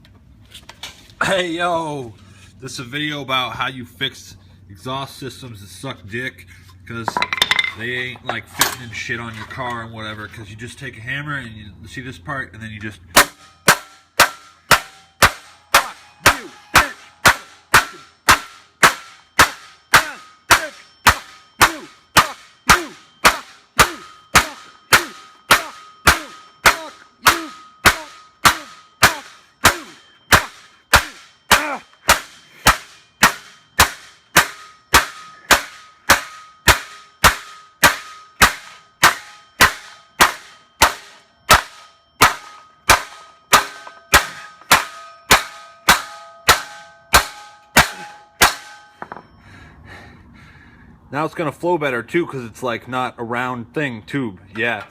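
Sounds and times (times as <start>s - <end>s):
hammer clanging on steel pipe: 7.1s - 9.5s, 13.1s - 49.4s.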